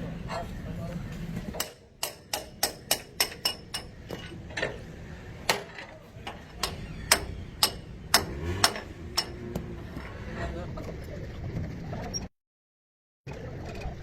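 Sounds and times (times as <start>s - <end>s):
hammer tapping on metal: 1.6s - 4.7s, 5.5s - 9.7s.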